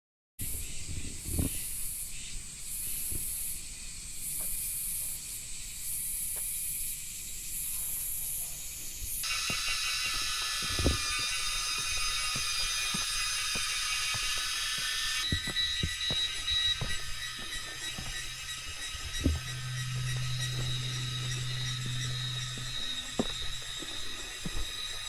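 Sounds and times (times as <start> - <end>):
cicada buzzing: 0.4 - 25.0
cicada chorus: 0.4 - 25.0
soft low thumps: 9.2 - 25.0.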